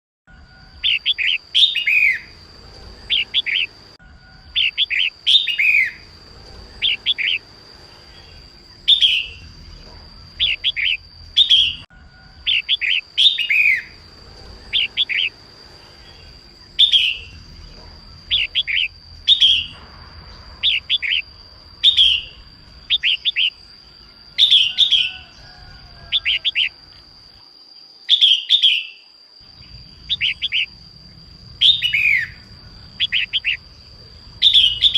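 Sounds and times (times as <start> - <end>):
steady high tone: 0.3 - 27.5
bird chirping song: 0.3 - 34.9.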